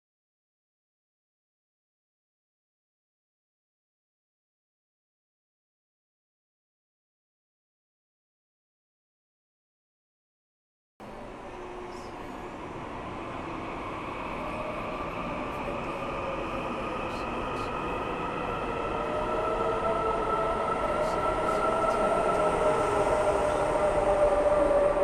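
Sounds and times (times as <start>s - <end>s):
train rumble: 11.0s - 25.0s.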